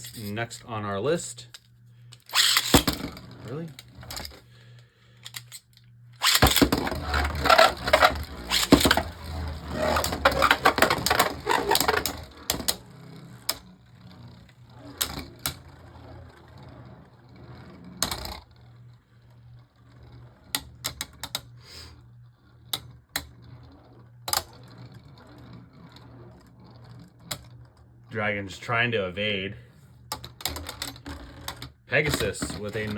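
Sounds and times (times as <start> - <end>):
spinning tops clattering: 0.0 - 0.6, 2.2 - 3.2, 6.2 - 17.2.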